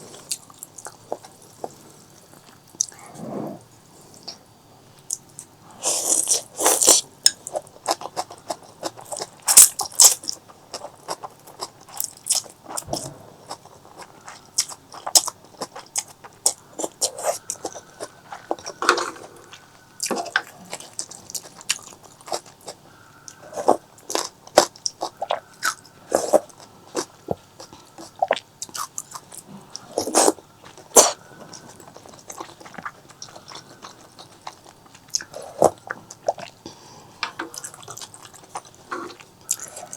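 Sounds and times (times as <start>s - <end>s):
biting and chewing: 0.0s - 4.4s, 5.0s - 39.9s
mouth clicks and wet smacks: 37.3s - 39.9s.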